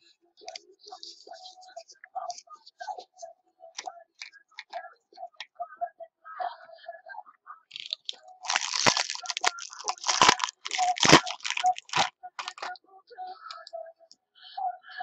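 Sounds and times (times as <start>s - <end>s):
packaging crinkling and tearing: 7.7s - 12.7s.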